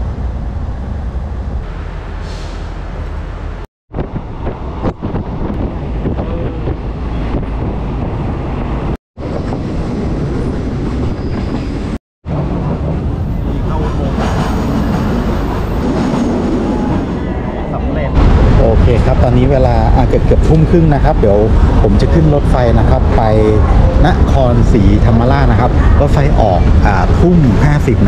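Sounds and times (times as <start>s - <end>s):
train rumbling on rails: 0.0s - 28.0s
train clanks: 4.4s - 17.2s.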